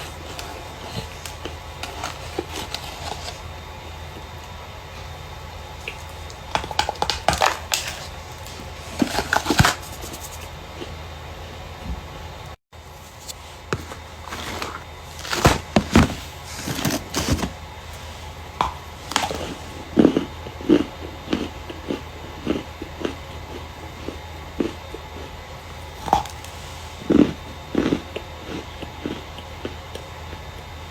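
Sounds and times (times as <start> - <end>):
starch crunching and crackling: 5.8 - 10.5, 12.9 - 20.3, 25.7 - 29.2.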